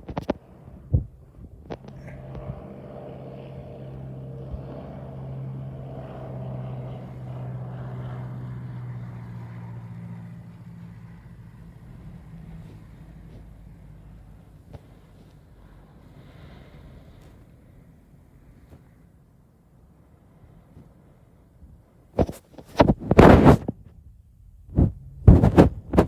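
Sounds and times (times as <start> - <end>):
propeller airplane engine running: 0.0 - 19.0, 22.2 - 26.0
sharp thump: 22.2 - 23.7, 24.8 - 26.0.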